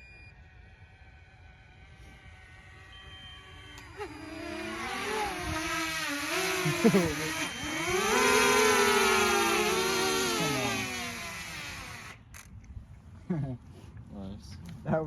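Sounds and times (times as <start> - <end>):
engine revving and accelerating: 3.8 - 11.4.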